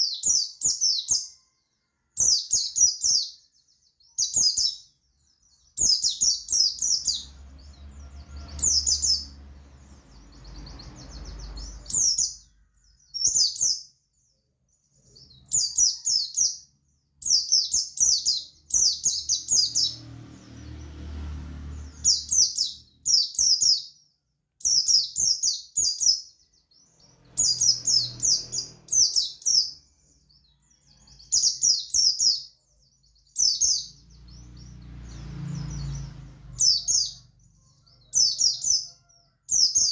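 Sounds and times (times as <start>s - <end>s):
bird singing chirpy phrases: 0.0s - 1.5s, 2.2s - 37.6s.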